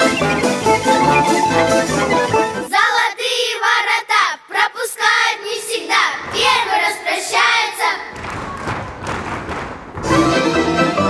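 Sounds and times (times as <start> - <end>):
instrumental music: 0.0 - 2.7, 10.0 - 11.0
children singing unaccompanied: 2.7 - 8.2.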